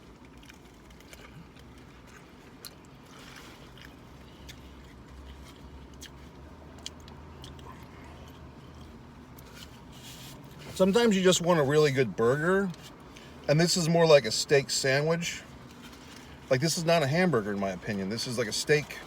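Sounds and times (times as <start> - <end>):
person chewing food: 0.0 - 9.9
low steady hum: 0.0 - 19.0.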